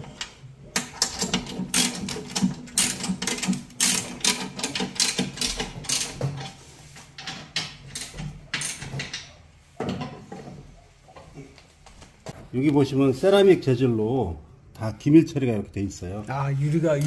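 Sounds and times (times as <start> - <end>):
sharp mechanical clicks and knocks: 0.0 - 6.5.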